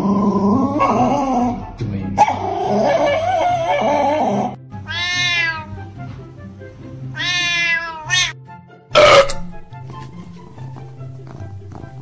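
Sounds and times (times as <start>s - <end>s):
cat meowing: 4.8s - 5.9s, 7.1s - 8.4s
background music with steady beat: 5.6s - 7.6s, 8.3s - 12.0s.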